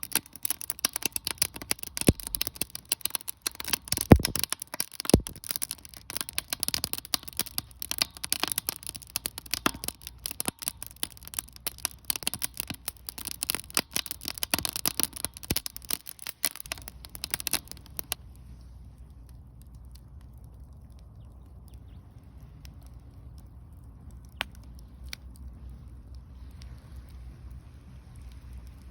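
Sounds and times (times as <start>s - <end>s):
wood fire crackling and popping: 0.0s - 28.9s
faint low rumble: 16.7s - 28.9s.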